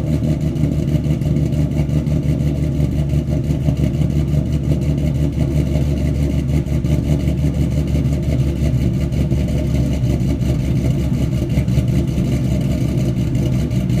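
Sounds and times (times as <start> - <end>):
car engine idling with uneven lope: 0.0 - 14.0.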